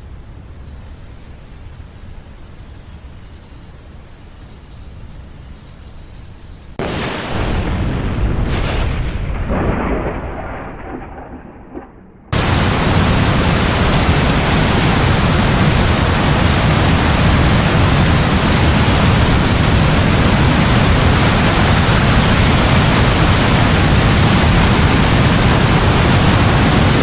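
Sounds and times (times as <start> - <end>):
heavy rain pouring: 6.8 - 27.0.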